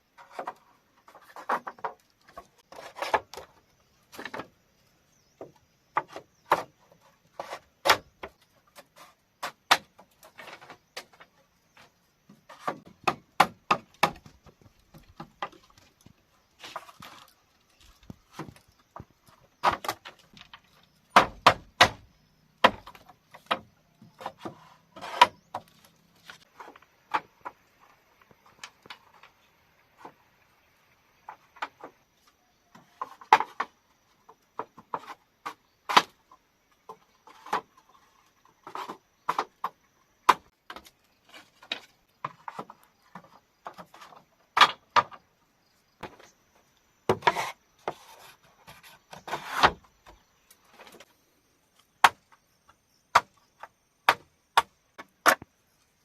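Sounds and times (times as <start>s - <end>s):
bamboo being chopped: 7.4s - 8.3s, 9.4s - 11.1s, 12.5s - 14.4s, 19.6s - 20.5s, 21.1s - 25.7s, 34.9s - 36.2s, 49.2s - 49.8s, 52.0s - 52.3s, 53.1s - 55.5s.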